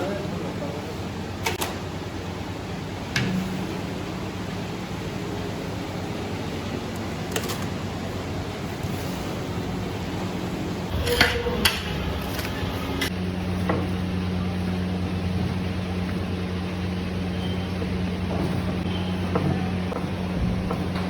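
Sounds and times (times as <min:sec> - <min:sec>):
steady low hum: 0:00.0 - 0:21.0
metal utensils clanking on pot: 0:10.9 - 0:13.1.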